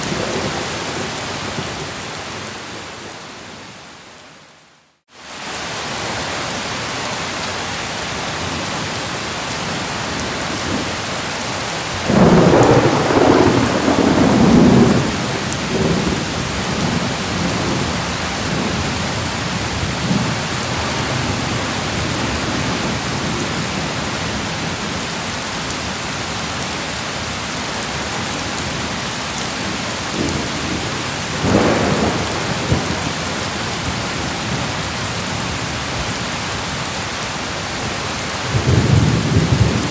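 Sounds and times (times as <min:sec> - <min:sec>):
heavy rain: 0:00.0 - 0:39.9
thunder rumbling: 0:12.0 - 0:19.0, 0:29.7 - 0:34.8, 0:38.4 - 0:39.9.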